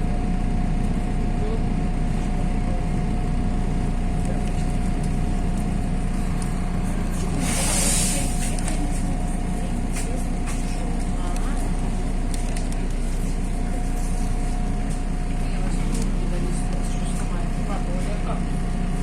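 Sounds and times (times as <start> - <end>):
bus engine droning: 0.0 - 19.0
constant thin whine: 0.5 - 19.0
compressed air hiss: 7.2 - 8.4.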